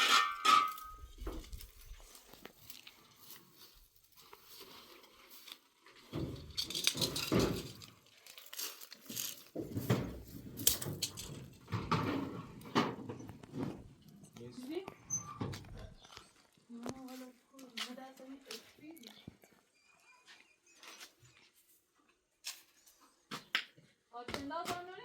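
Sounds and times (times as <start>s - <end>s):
rustling and crinkling handling: 0.0s - 19.6s.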